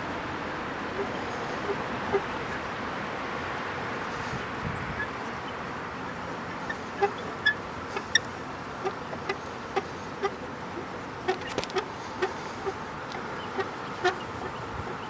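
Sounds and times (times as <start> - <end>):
chickens clucking: 0.9 - 2.7, 4.1 - 15.0.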